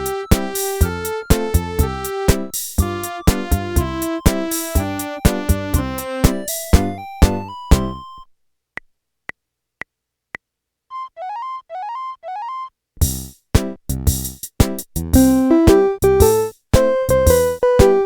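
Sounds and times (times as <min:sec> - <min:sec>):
keyboard playing a tune: 0:00.0 - 0:08.3, 0:10.9 - 0:12.7, 0:15.2 - 0:18.0
quick rising chirps: 0:10.9 - 0:12.7.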